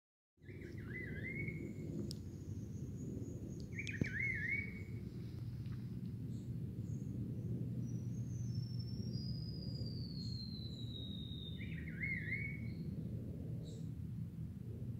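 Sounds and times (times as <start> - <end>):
low rumble: 0.6 - 11.0
bird warbling: 3.7 - 4.9.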